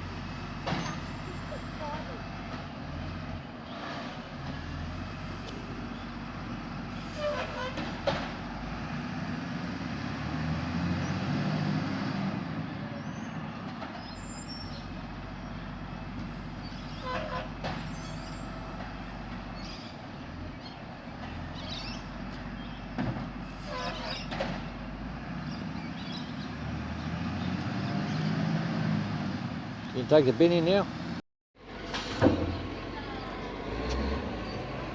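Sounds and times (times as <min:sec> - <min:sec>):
garbage truck engine revving: 0:00.0 - 0:29.9, 0:31.0 - 0:34.9
short knocks and squeaks: 0:00.6 - 0:01.4, 0:07.2 - 0:08.3, 0:16.6 - 0:19.0, 0:22.7 - 0:24.7.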